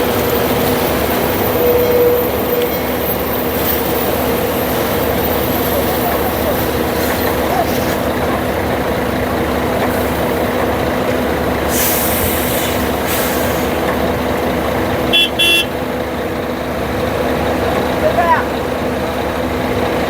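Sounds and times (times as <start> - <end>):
heavy truck engine running: 0.0 - 20.0
truck horn double toot: 1.6 - 2.8, 15.1 - 15.9
air hiss: 11.7 - 13.9.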